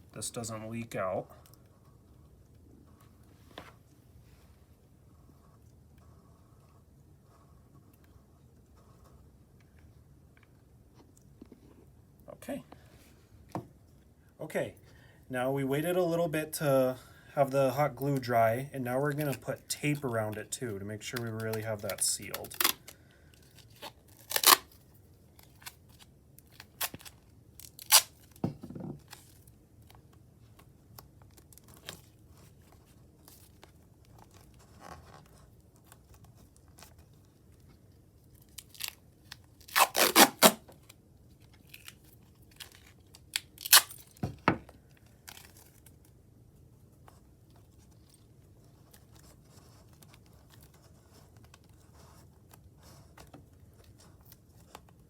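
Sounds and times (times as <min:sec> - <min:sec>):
adhesive tape ripping: 0:21.0 - 0:28.4, 0:38.4 - 0:41.0, 0:41.6 - 0:44.2.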